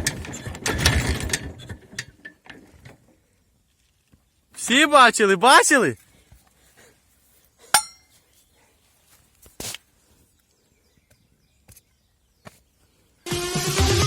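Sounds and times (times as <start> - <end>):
sharp metallic clink: 7.8 - 8.1.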